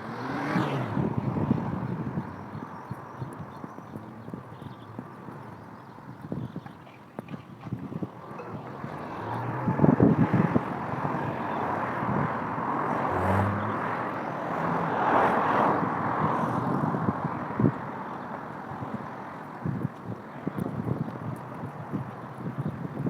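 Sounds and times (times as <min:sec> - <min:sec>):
vehicle passing: 0:00.0 - 0:05.7, 0:07.8 - 0:19.8.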